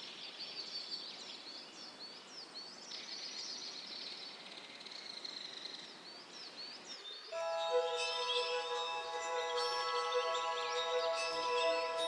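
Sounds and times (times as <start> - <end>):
steady high trill: 7.4 - 12.0.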